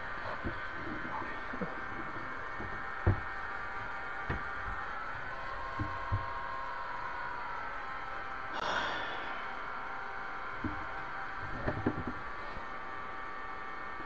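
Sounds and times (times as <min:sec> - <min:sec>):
steady low hum: 0:00.0 - 0:14.0
short dull knocks: 0:02.5 - 0:04.8.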